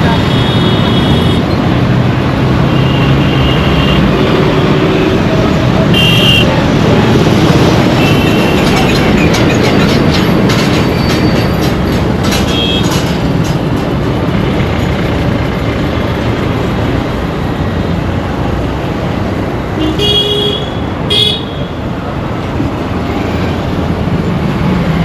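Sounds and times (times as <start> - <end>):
passing vehicles rumbling: 0.0 - 25.0
rapid clattering clicks: 7.4 - 15.6.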